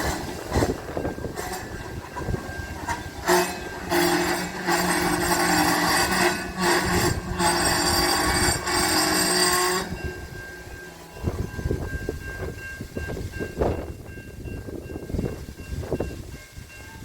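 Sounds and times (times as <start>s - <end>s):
low engine drone: 0.0s - 12.6s
freight train passing: 0.0s - 17.0s.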